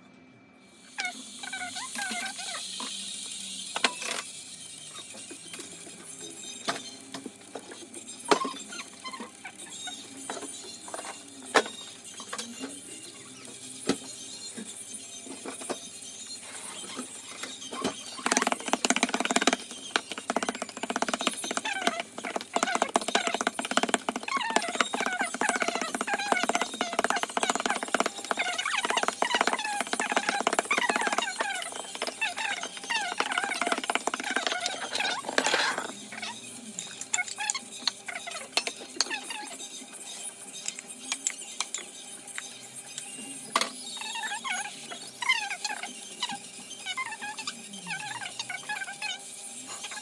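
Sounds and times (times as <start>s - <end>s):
utensil scraping bowl: 16.4s - 36.3s.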